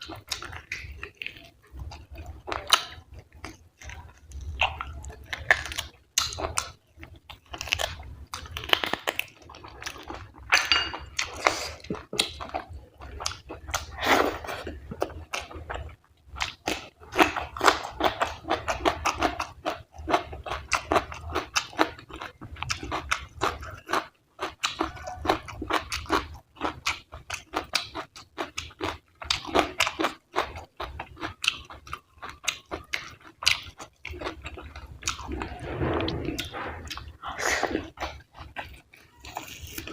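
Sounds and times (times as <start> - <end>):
wet chewing sounds: 0.0 - 39.9.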